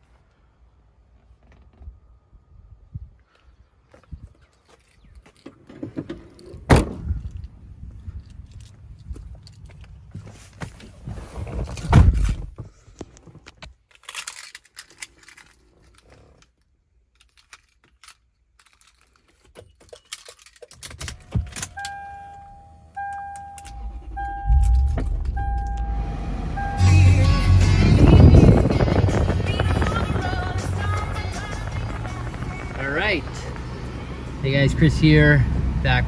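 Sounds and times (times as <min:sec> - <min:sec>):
car engine cranking and starting: 0:20.7 - 0:36.0
car warning chime beeping: 0:21.7 - 0:27.6.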